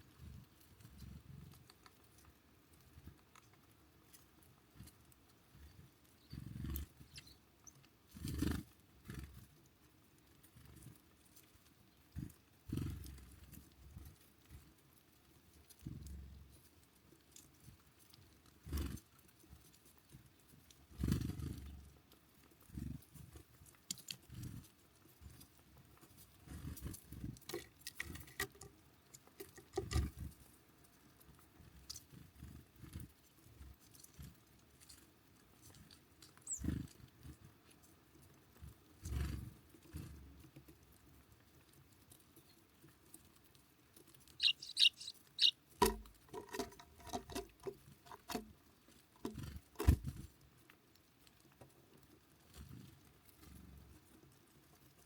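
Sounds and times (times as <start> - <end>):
birds thumping and pecking: 22.6 - 50.5
high bird chirps: 36.4 - 36.6, 44.4 - 45.6.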